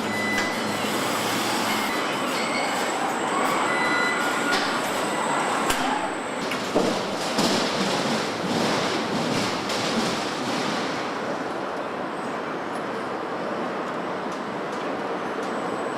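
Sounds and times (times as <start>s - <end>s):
production-line machinery rushing: 0.0s - 11.4s.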